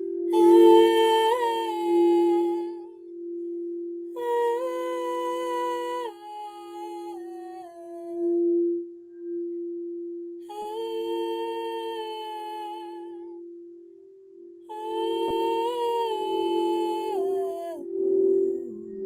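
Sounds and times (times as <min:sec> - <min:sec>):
steady drone tone: 0:00.0 - 0:19.0
woman singing wordless notes: 0:00.3 - 0:03.0, 0:04.1 - 0:08.5, 0:10.4 - 0:13.4, 0:14.6 - 0:19.0.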